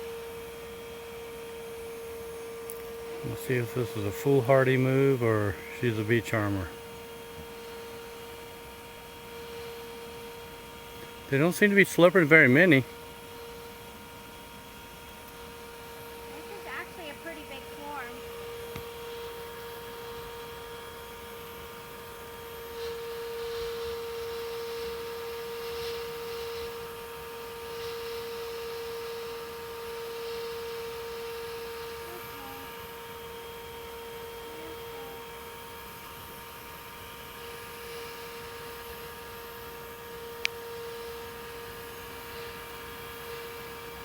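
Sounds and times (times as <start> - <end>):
vacuum whining hum: 0.0 - 44.0
suction hiss: 21.5 - 33.2.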